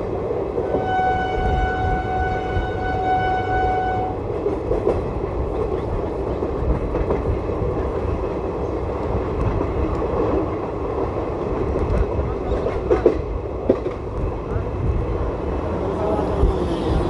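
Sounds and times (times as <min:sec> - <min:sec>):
train wheels rumbling on rails: 0:00.0 - 0:17.0
locomotive horn: 0:00.6 - 0:04.2
clatter over rail joints: 0:11.5 - 0:14.3.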